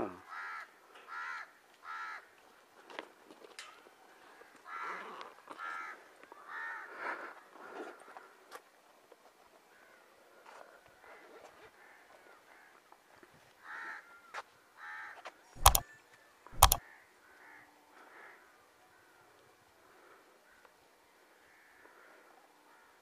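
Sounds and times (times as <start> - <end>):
sharp clicks: 15.6 - 15.8, 16.6 - 16.8.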